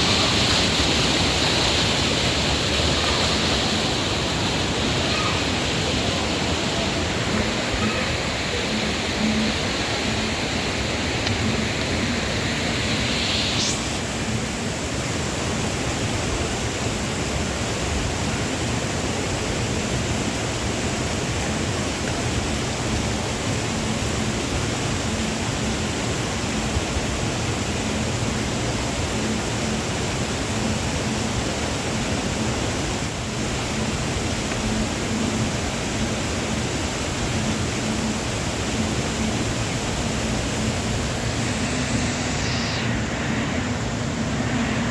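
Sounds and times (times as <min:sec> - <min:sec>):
bright high hiss: 0:00.0 - 0:18.6, 0:19.2 - 0:44.9
waterfall rushing: 0:00.0 - 0:44.9
short rising sound: 0:11.5 - 0:14.3, 0:40.6 - 0:44.9.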